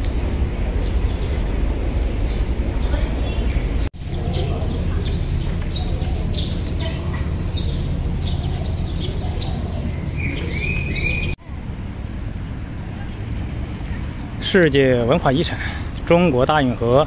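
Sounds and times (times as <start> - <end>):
low background rumble: 0.0 - 17.0
low drawn-out bird call: 0.3 - 11.4
small birds chirping: 0.7 - 11.4.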